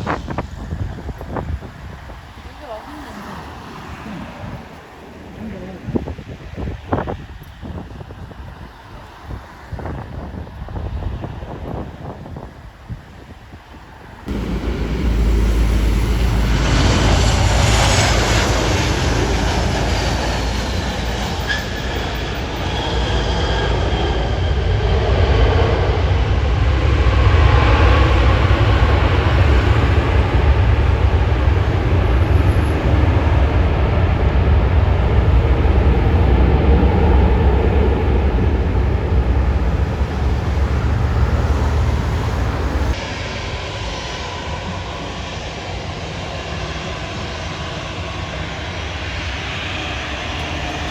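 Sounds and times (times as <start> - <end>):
jet engines rumbling: 0.0 - 50.9
jet engine whine falling in pitch: 14.3 - 50.9.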